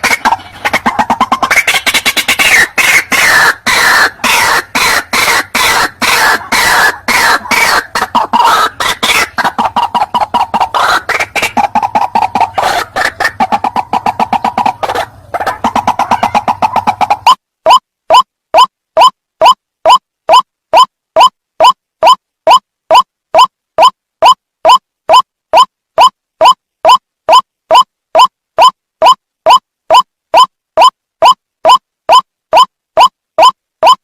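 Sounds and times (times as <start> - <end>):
waterhen calling harsh notes: 0.0 - 25.2.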